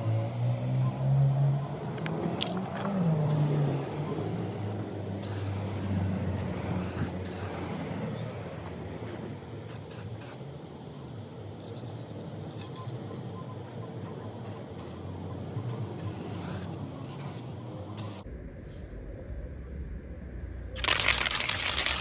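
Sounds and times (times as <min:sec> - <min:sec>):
aerosol spray can hissing: 0:03.3 - 0:08.4.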